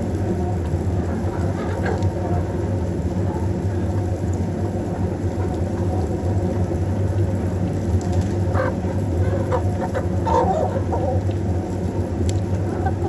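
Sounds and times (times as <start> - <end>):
chickens clucking: 0.9 - 3.7, 7.9 - 13.0.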